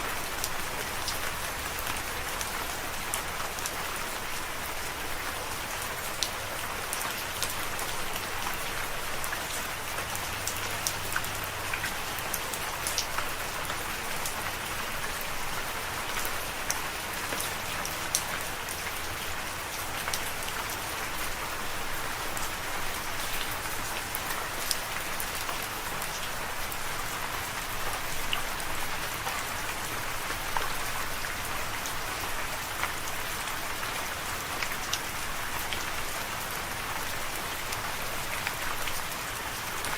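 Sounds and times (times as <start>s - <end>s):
rain falling on a surface: 0.0s - 39.9s
raindrops pattering: 0.0s - 39.9s.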